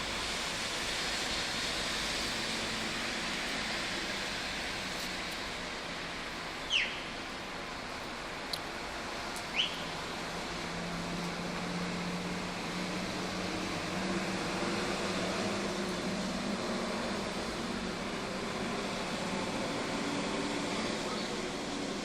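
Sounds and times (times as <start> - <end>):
low engine-like hum: 0.0 - 22.0
rain hiss: 0.0 - 22.0.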